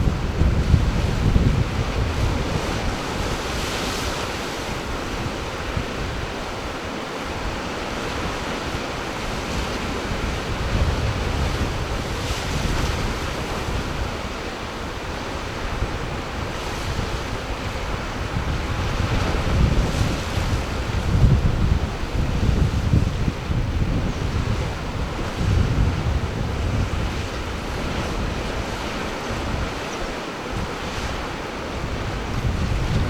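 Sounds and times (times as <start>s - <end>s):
ocean surf washing in: 0.0s - 33.0s
wind gusting on microphone: 0.0s - 33.0s.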